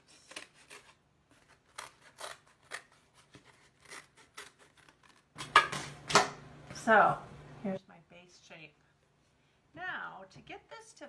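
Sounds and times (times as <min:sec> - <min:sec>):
scissors cutting cardboard: 0:00.0 - 0:05.7.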